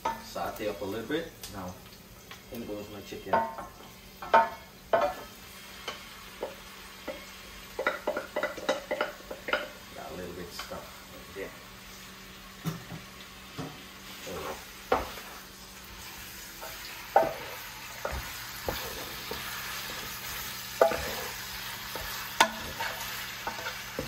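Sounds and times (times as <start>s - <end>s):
chicken and onion sizzling in pan: 0.0s - 24.0s
wooden spoon knocking pan: 16.6s - 24.0s.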